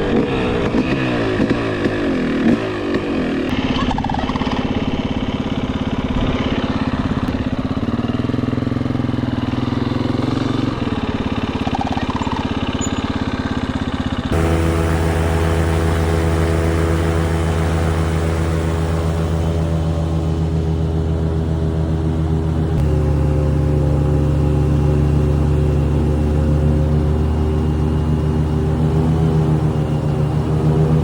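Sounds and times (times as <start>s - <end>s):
dirt bike engine running: 0.0s - 31.0s
deep steady engine drone: 14.2s - 31.0s.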